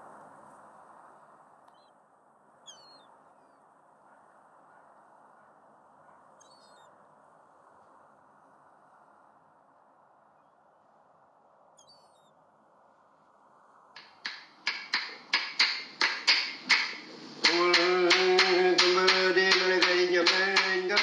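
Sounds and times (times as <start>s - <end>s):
faint hiss: 6.4s - 21.0s
clapsticks struck in even beat: 14.0s - 21.0s
man chanting loudly: 17.4s - 21.0s.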